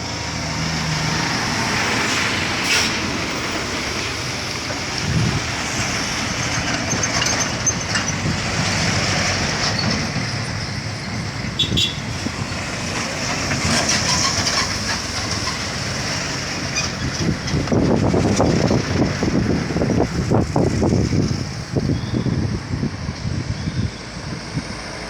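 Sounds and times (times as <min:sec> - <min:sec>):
diesel truck engines labouring: 0:00.0 - 0:25.0
truck bodies clattering: 0:00.1 - 0:11.6, 0:12.2 - 0:21.9
high squeal: 0:21.8 - 0:22.6.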